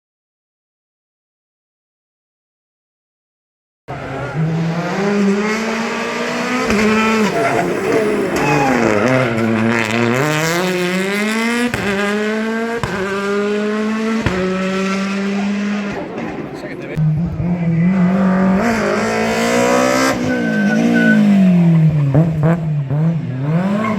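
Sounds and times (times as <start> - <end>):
rally car engine revving: 3.9 - 23.9.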